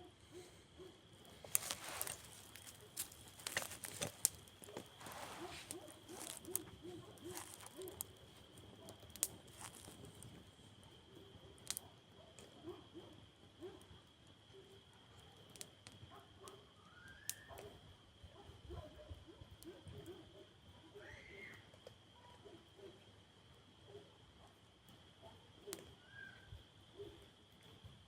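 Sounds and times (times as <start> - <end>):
campfire crackling and popping: 1.1 - 12.6, 15.4 - 16.1.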